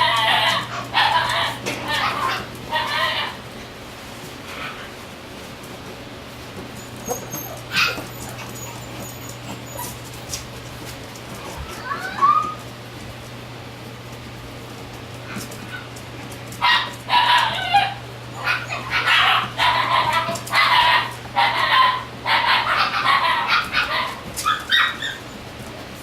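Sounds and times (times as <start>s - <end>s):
puppy yapping: 0.0s - 3.4s, 6.8s - 10.5s, 11.3s - 12.6s, 16.6s - 25.4s.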